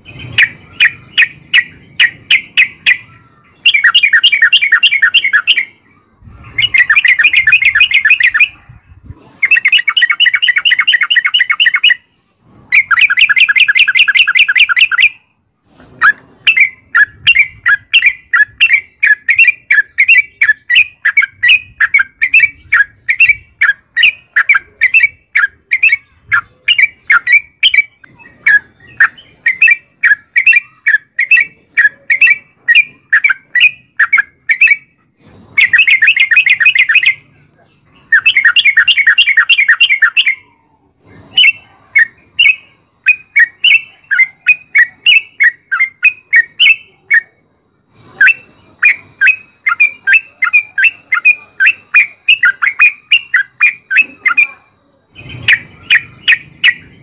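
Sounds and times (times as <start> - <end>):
sharp bird chirps: 0.0 - 8.6, 9.4 - 15.3, 16.0 - 47.3, 48.2 - 57.0
bird rolling trills: 15.9 - 47.3, 48.1 - 57.0.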